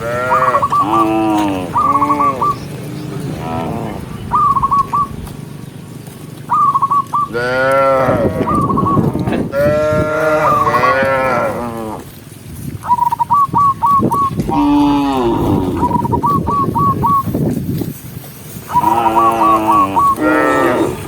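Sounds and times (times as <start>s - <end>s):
cattle mooing: 0.0s - 4.1s, 7.3s - 12.1s, 14.4s - 16.4s, 18.8s - 21.0s
bird chirping: 0.3s - 7.4s, 12.8s - 17.4s.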